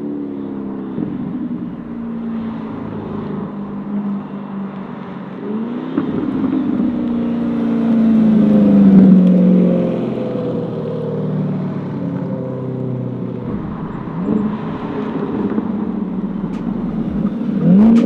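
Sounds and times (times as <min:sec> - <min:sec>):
loud car exhaust note: 0:13.4 - 0:18.0.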